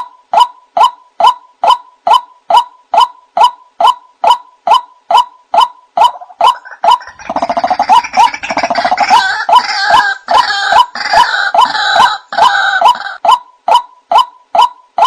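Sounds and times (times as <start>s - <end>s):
harsh bird calls: 0.0s - 15.0s
fast chattering rattle: 6.6s - 9.8s.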